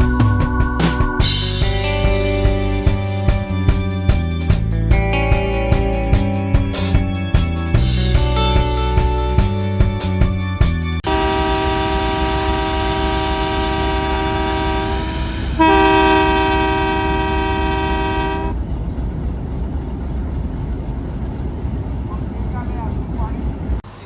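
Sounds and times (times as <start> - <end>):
low rumble of train: 0.0 - 9.4, 11.0 - 24.0
train horn blast: 11.0 - 18.6.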